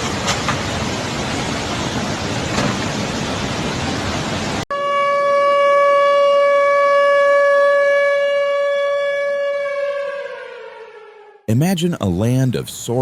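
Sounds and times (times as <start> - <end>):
warning siren: 4.7 - 11.5.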